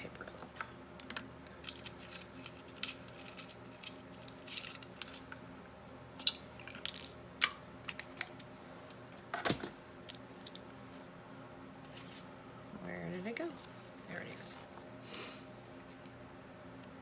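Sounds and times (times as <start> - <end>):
small objects clicking and clinking: 1.1 - 5.3.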